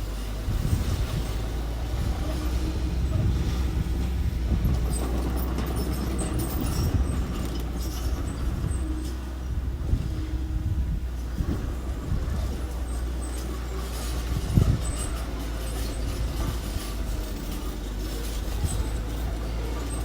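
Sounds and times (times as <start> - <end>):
construction machine engine rumbling: 0.0 - 20.0
metallic clanks and rattles: 2.2 - 9.2.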